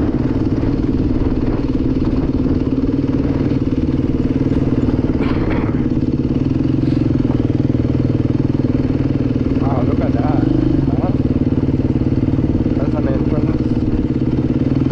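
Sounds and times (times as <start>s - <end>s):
dirt bike engine running: 0.0s - 14.9s.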